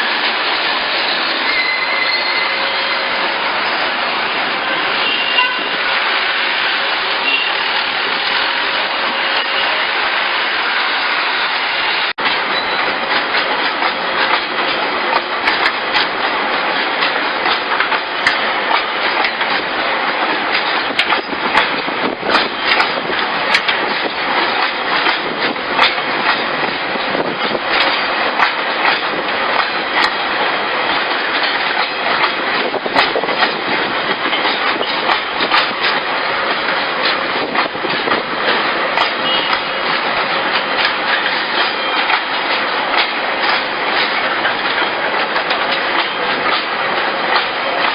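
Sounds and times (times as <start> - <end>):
train rumbling on track: 0.0 - 47.9
wheels clacking over rails: 12.2 - 47.9.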